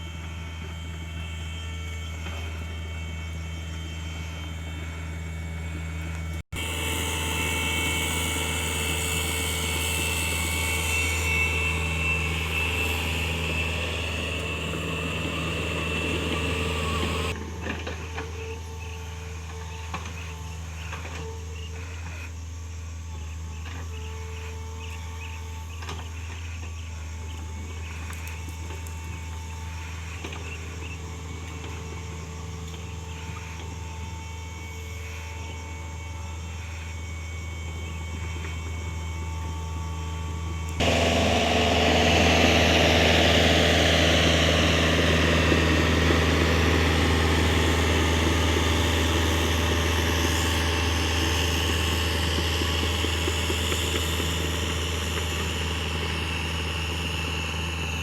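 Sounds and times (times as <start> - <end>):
excavator diesel engine running: 0.0 - 21.4, 25.5 - 58.0.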